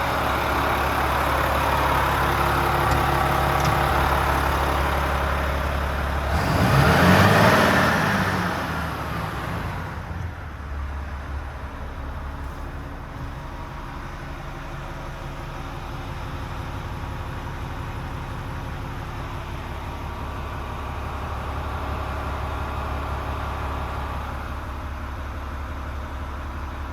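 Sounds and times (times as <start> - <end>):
diesel truck engine idling: 0.0 - 26.9
engine revving: 2.8 - 10.1.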